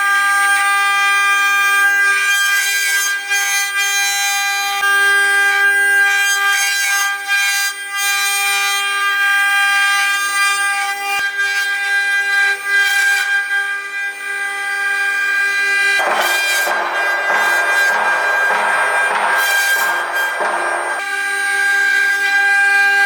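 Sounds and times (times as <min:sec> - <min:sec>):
milling machine whine: 0:16.0 - 0:21.2
rough machining noise: 0:16.0 - 0:21.3.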